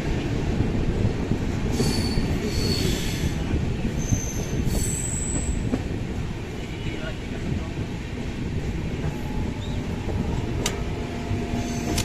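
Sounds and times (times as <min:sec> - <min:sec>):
train rumbling on track: 0:00.0 - 0:12.0
train wheels squealing: 0:01.7 - 0:05.7, 0:09.0 - 0:10.4, 0:11.5 - 0:12.0.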